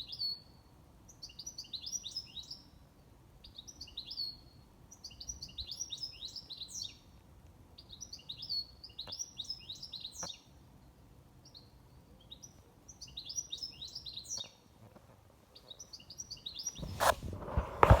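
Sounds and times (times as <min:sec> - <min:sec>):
songbird singing high chirps: 0:00.0 - 0:02.8, 0:03.4 - 0:07.2, 0:07.8 - 0:10.6, 0:11.4 - 0:14.7, 0:15.5 - 0:16.8
microphone handling rustle: 0:16.7 - 0:18.0.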